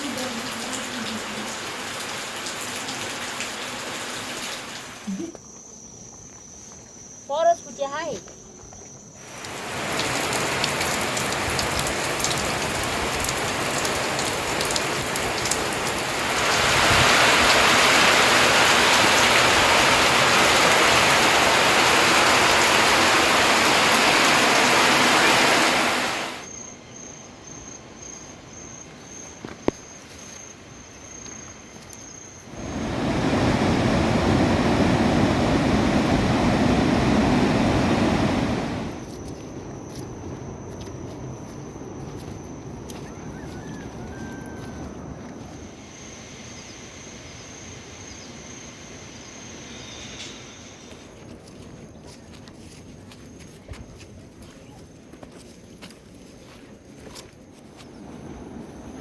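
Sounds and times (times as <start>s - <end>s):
heavy rain rushing: 0.0s - 5.1s, 9.2s - 26.5s, 32.5s - 39.1s.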